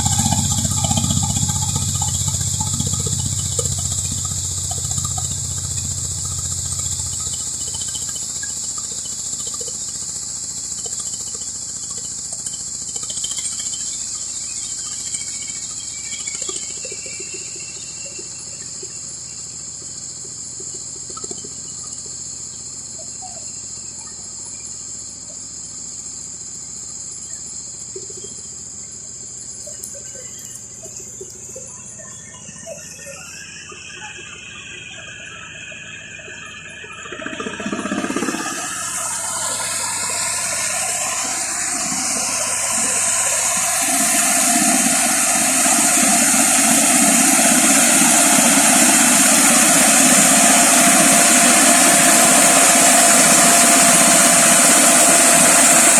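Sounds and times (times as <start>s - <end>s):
harvester engine humming: 0.0s - 13.8s, 29.3s - 55.9s
high-pitched insect chorus: 0.0s - 55.9s.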